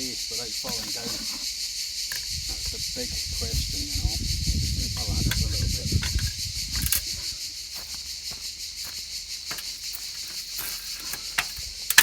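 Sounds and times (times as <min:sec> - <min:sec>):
insects chirring: 0:00.0 - 0:12.0
trowel scraping and tapping concrete: 0:00.6 - 0:01.5, 0:09.4 - 0:12.0.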